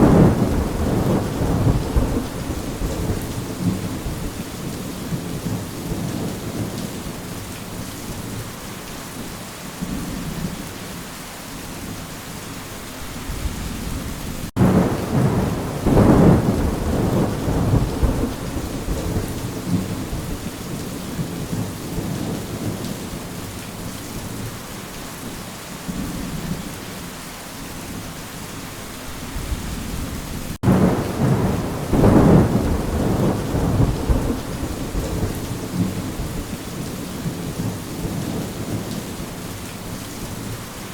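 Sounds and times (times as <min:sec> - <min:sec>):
thunder rumbling: 0:00.0 - 0:07.1, 0:13.3 - 0:23.0, 0:29.3 - 0:39.5
steady rain falling: 0:00.0 - 0:40.9.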